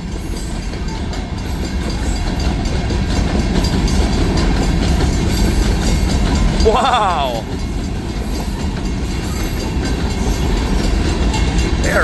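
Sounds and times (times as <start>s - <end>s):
freight train rumbling past: 0.0s - 12.0s.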